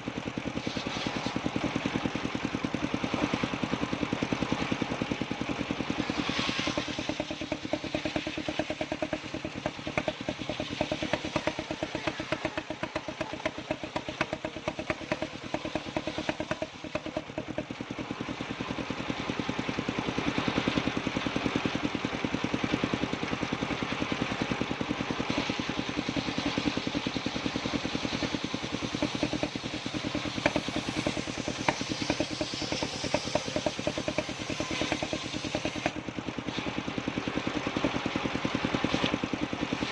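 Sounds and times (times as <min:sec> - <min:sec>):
circular saw running: 0:00.0 - 0:39.9
engine firing beat: 0:05.8 - 0:17.8, 0:25.3 - 0:36.0.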